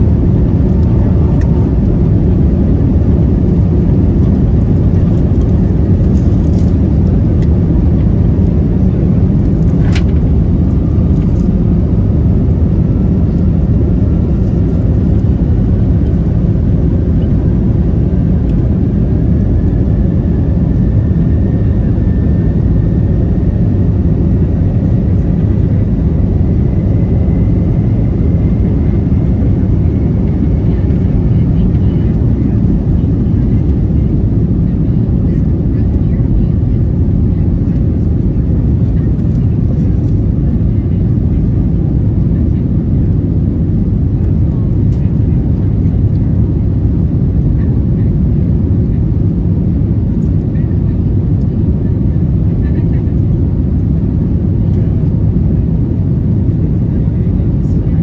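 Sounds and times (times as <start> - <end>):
low rumble of engines and airflow: 0.0 - 58.0.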